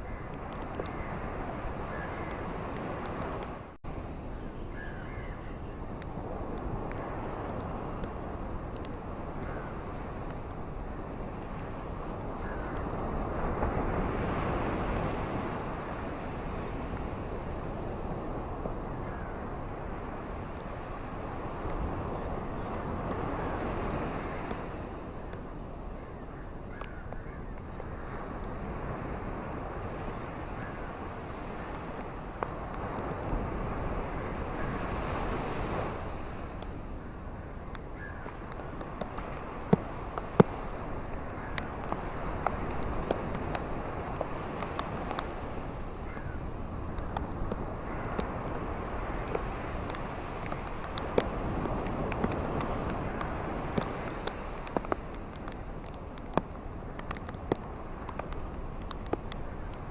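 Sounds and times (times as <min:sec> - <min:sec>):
rain with wind: 0:00.0 - 0:59.9
steady rain falling: 0:46.8 - 0:59.9.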